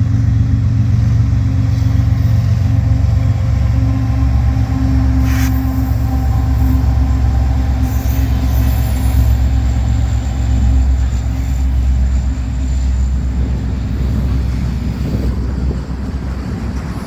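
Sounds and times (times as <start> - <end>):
freight train rumbling past: 0.0 - 17.0
humming tone: 1.6 - 14.4.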